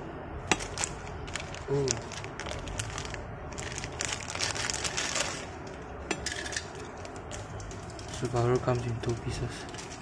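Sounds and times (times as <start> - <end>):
packaging rustling: 0.5 - 5.8.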